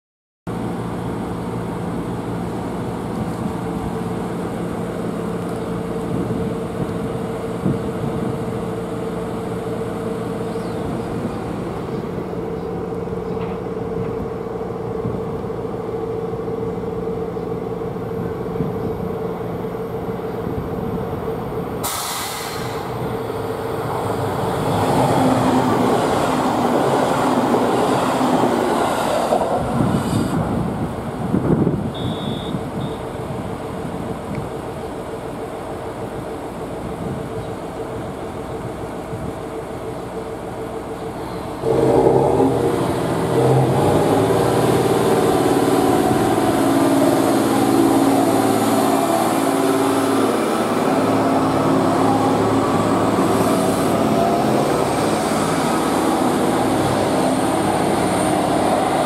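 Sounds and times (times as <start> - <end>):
passing train rushing rumble: 0.5 - 59.0
railcar engine humming: 0.5 - 59.0.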